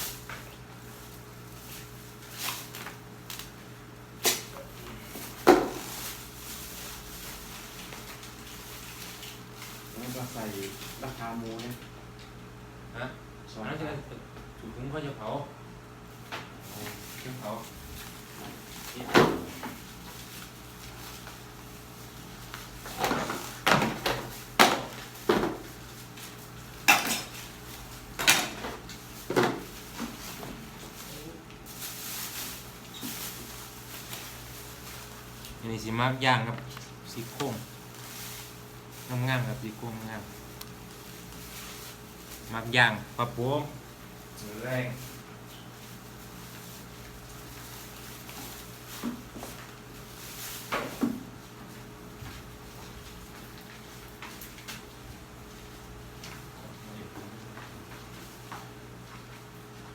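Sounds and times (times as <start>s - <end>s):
dishes and utensils clattering: 26.9s - 27.3s.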